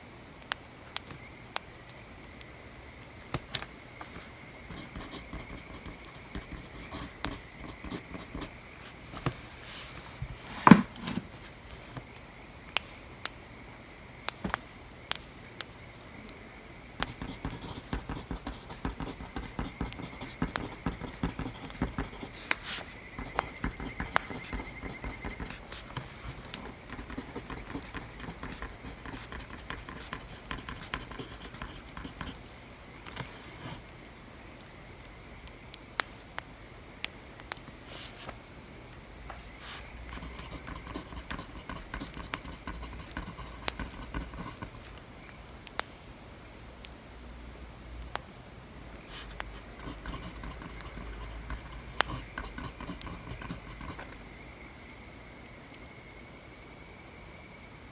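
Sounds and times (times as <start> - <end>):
pencil scratching on paper: 4.0 - 11.4, 17.0 - 32.5, 33.1 - 33.8, 39.4 - 45.0, 49.0 - 54.2.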